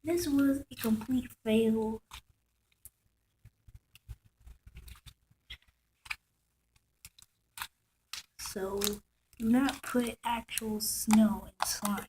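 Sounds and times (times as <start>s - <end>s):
sticky slime clicks and crackles: 3.7s - 12.0s.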